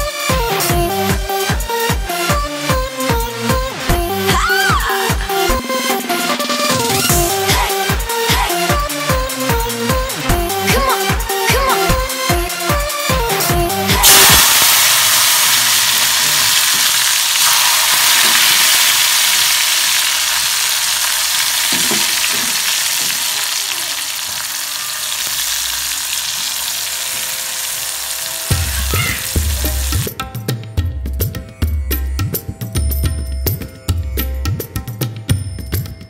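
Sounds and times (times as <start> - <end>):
music with a beat: 0.0 - 14.4, 28.5 - 36.0
oil sizzling and bubbling: 14.0 - 30.1.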